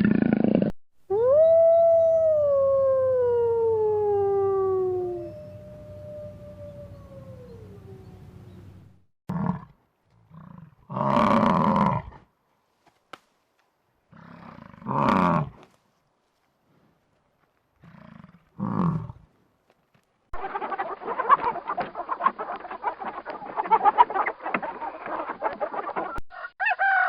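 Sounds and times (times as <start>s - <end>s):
falling howl: 1.1s - 8.8s
big cat roaring: 10.3s - 12.2s, 14.2s - 15.6s.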